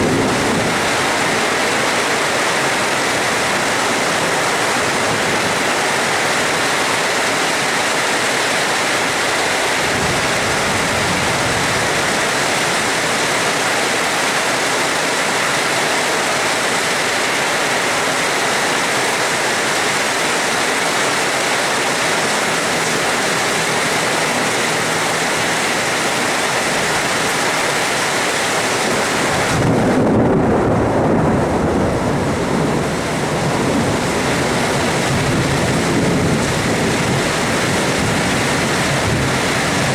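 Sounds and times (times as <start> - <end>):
low thunder rumbling: 0.0 - 4.3, 28.8 - 39.9
rain hissing: 16.2 - 39.9.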